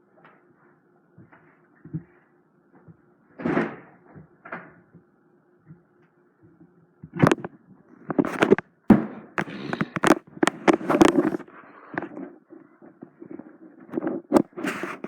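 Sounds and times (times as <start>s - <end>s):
scraping or rustling: 9.4s - 15.0s.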